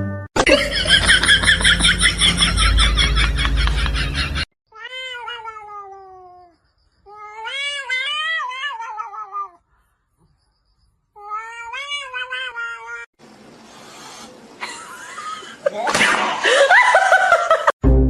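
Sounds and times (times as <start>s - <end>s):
cat meowing: 4.7s - 9.6s, 11.2s - 13.1s.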